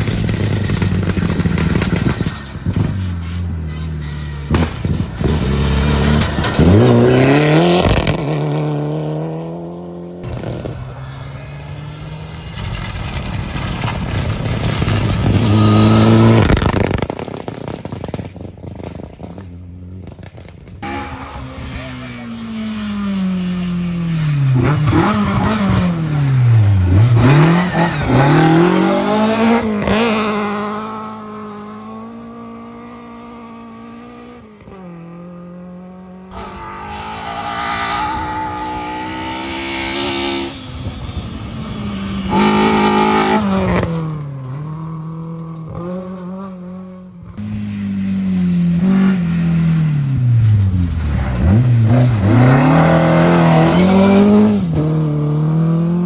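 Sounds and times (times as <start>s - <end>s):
rally car engines revving: 0.0s - 17.9s, 20.0s - 56.0s.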